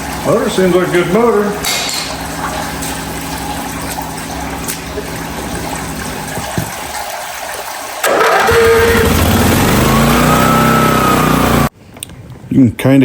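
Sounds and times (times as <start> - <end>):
water rushing from hose: 0.0 - 11.7
pressure washer engine hum: 8.0 - 11.7.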